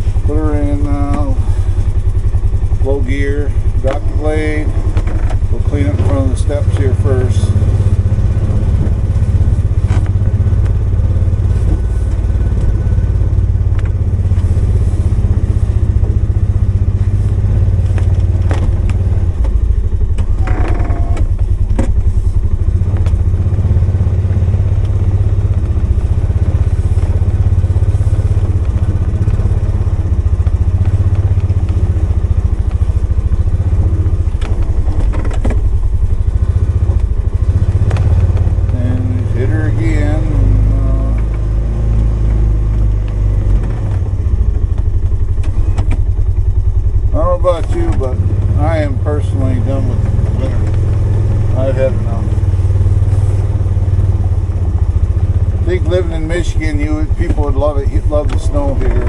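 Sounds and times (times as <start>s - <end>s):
utility vehicle engine under load: 0.0s - 59.0s
snow plow clunks: 3.8s - 38.9s, 43.1s - 46.9s, 55.5s - 59.0s.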